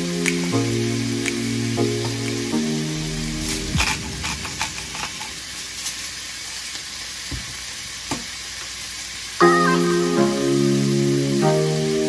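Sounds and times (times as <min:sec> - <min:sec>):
background music: 0:00.0 - 0:05.6, 0:09.4 - 0:12.0
food sizzling in a wok: 0:03.8 - 0:11.4.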